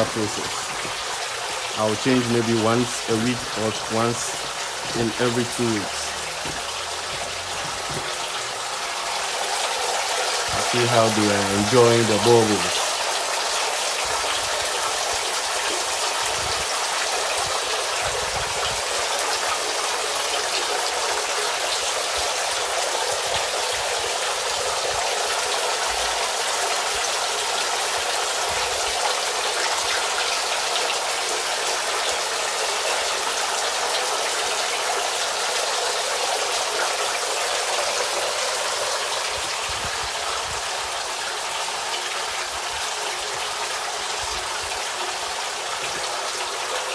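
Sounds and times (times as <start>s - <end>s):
water splashing into pond: 0.0s - 32.6s.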